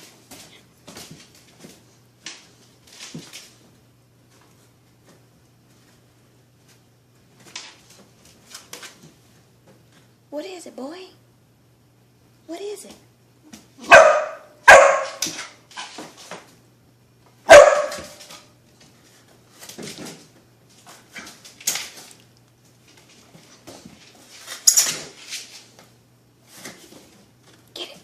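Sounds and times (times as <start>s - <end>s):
dog yipping: 13.8s - 15.2s, 17.5s - 18.2s
dog barking: 13.8s - 15.3s, 17.4s - 18.2s.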